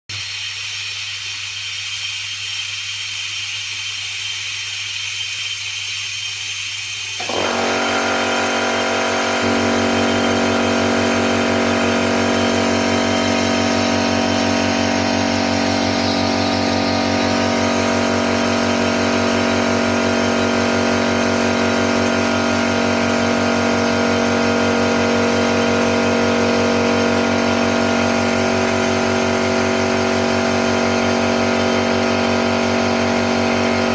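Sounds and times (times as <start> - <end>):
steady hiss: 0.1 - 7.2
electric motor whine: 7.2 - 33.9.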